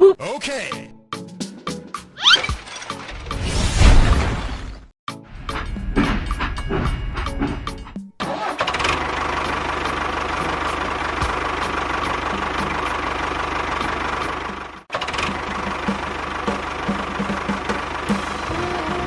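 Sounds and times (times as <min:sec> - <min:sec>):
small engine running: 0:08.3 - 0:19.0.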